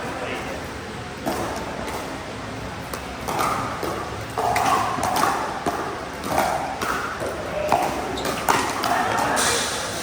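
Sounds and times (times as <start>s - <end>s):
paddles hitting plastic ball: 2.8s - 9.3s.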